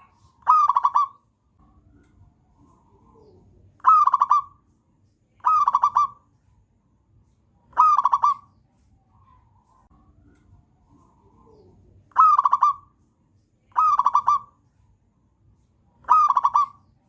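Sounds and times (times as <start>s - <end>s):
dove singing: 0.0s - 1.2s, 2.5s - 4.6s, 5.4s - 6.3s, 7.7s - 8.6s, 10.9s - 13.0s, 13.7s - 14.6s, 16.0s - 17.0s.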